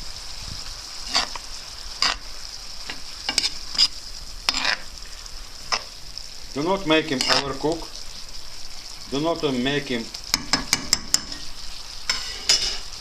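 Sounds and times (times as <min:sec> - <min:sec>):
vegetables sizzling in a frying pan: 0:00.0 - 0:13.0
utensil scraping a pan: 0:01.0 - 0:01.4, 0:02.0 - 0:02.3, 0:02.9 - 0:04.9, 0:07.1 - 0:07.6, 0:10.4 - 0:13.0.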